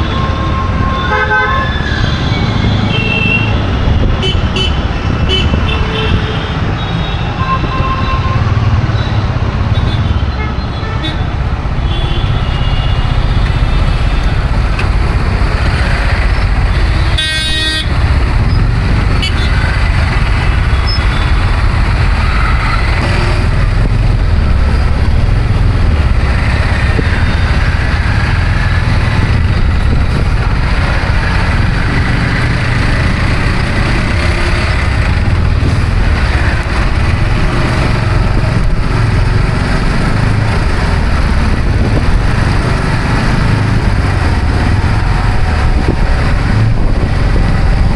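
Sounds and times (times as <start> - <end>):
road traffic rumble: 0.0 - 47.9
vehicle horn honk: 11.8 - 13.0, 17.0 - 18.0.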